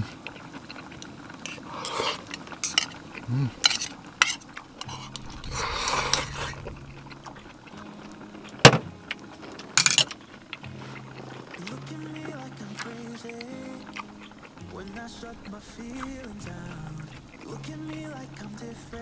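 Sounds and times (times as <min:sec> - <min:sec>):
stirring or scraping in pot: 0:00.0 - 0:19.0
cutlery clinking against pot: 0:00.7 - 0:14.9.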